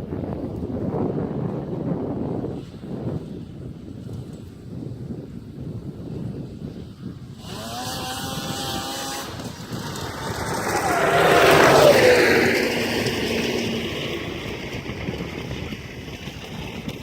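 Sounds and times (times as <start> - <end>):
snowmobile two-stroke engine: 6.1 - 17.0.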